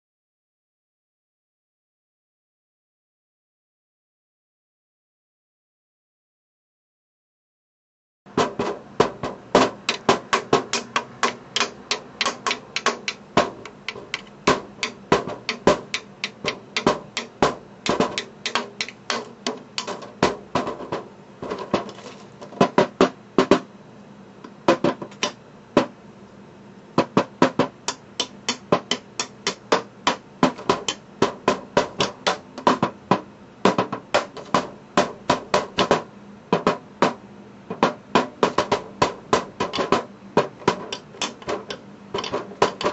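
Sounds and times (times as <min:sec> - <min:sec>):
metallic taps on cake pan: 0:10.8 - 0:20.0.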